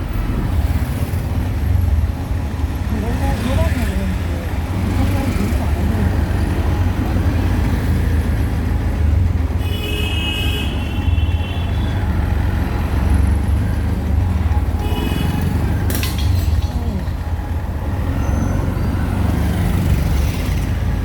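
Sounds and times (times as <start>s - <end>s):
engine and road rumble: 0.0s - 21.0s
vehicle horn honking: 9.6s - 12.1s, 14.8s - 15.7s.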